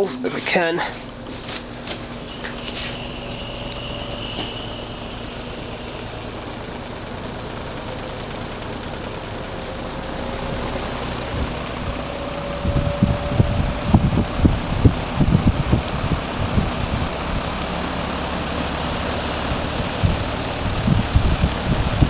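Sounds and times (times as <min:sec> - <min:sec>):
faint motor hum: 0:00.0 - 0:22.0
fan air rushing: 0:00.0 - 0:22.0.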